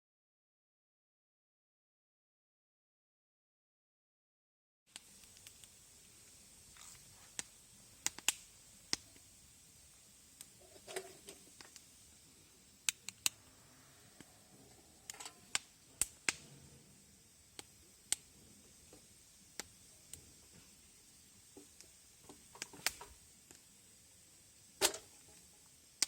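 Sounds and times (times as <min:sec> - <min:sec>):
campfire crackling: 0:04.9 - 0:26.0.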